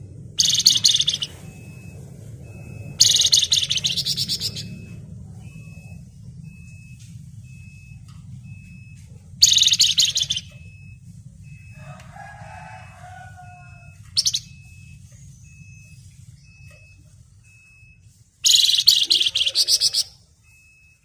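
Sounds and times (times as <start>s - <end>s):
songbird rattling chatter: 0.4s - 1.6s, 3.0s - 4.8s.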